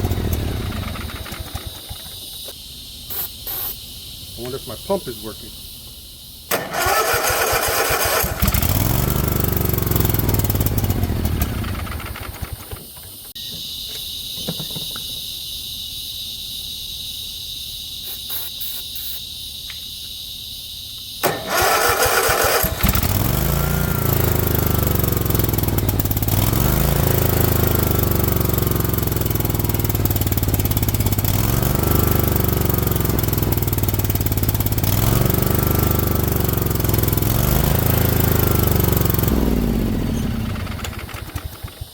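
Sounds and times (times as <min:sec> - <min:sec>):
mower engine cranking and surging: 0:00.0 - 0:02.5, 0:06.5 - 0:13.0, 0:21.2 - 0:41.9.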